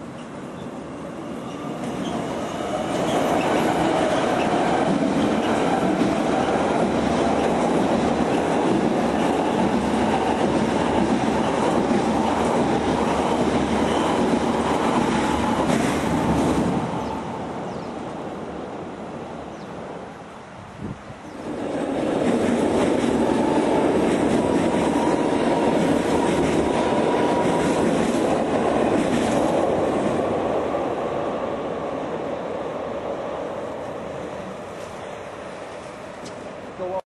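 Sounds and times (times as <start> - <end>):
train wheels rumbling on rails: 1.0 - 17.2, 21.4 - 31.1.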